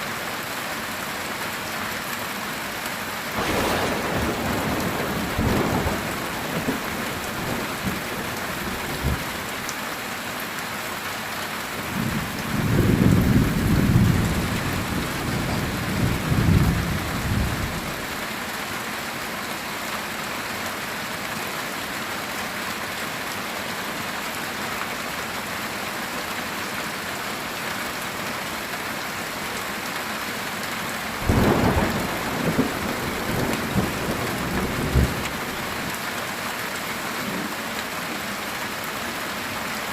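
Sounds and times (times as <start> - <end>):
heavy rain on a tin roof: 0.0 - 39.9
rolling thunder: 3.4 - 9.3, 12.0 - 18.0, 31.2 - 35.9.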